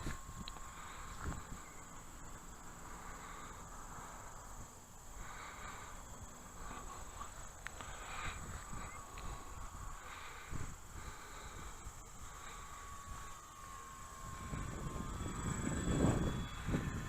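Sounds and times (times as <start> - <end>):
wind rumble on microphone: 0.0 - 1.8, 6.5 - 17.0
distant model plane motor buzzing: 0.0 - 17.0
insects chirring: 0.0 - 17.0.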